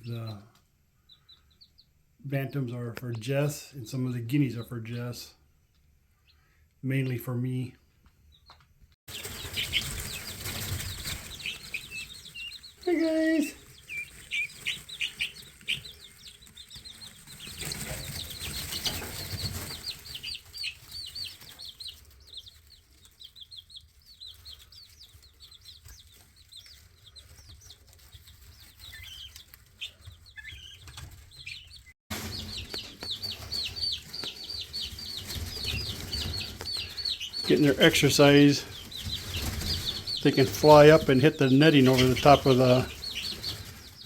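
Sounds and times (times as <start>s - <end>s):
chicks peeping: 0.0s - 44.0s
wings flapping and scrambling: 9.1s - 44.0s.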